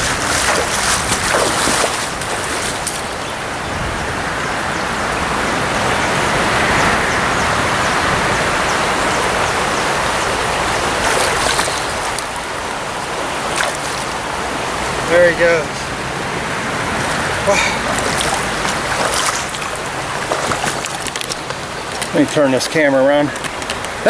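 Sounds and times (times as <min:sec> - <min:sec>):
water splashing: 0:00.0 - 0:03.6, 0:08.9 - 0:24.0
river current rushing: 0:00.0 - 0:24.0.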